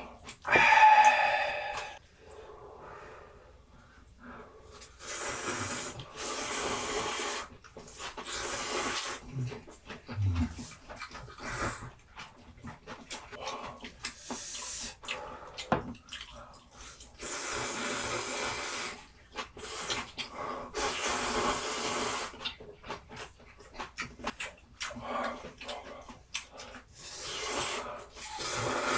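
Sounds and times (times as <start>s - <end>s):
mouth clicks: 0.5s - 2.0s
slurping noodles: 0.5s - 2.0s, 5.0s - 11.9s, 16.2s - 22.4s, 26.8s - 28.9s
wet chewing: 7.5s - 17.4s, 19.1s - 28.9s.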